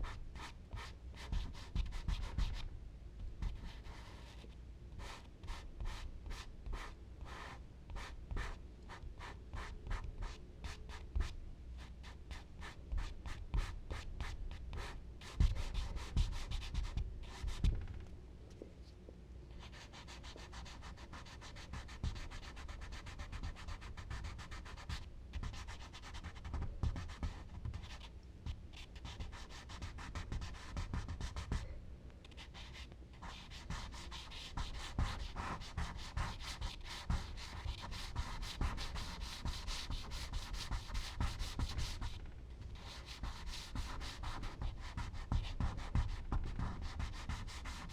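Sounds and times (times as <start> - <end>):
low bumps on drawing board: 15.3 - 18.1
charcoal scratching on paper: 32.5 - 42.2, 42.8 - 47.9.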